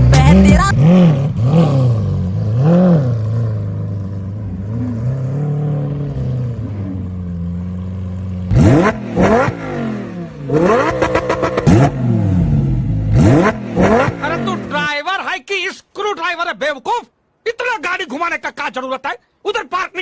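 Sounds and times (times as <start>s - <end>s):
vehicle engine revving: 0.0s - 14.9s.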